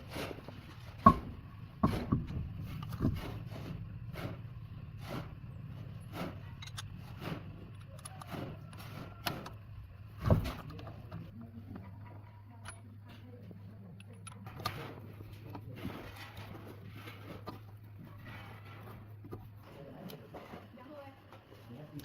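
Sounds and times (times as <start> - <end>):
steady low hum: 0.0 - 22.0
sharp knocks: 1.0 - 2.4.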